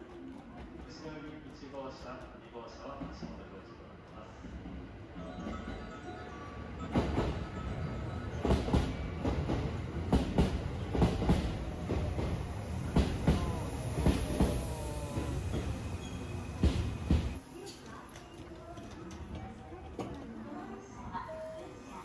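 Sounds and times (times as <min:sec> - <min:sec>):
low train rumble: 0:02.2 - 0:17.5
faint brake squeal: 0:14.2 - 0:17.4.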